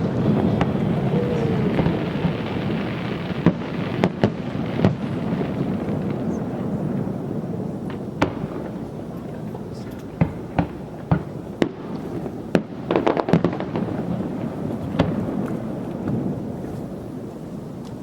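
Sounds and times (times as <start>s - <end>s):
crackling pops: 0.0s - 6.4s
fireworks bangs: 0.0s - 18.0s
fireworks booming: 0.0s - 18.0s.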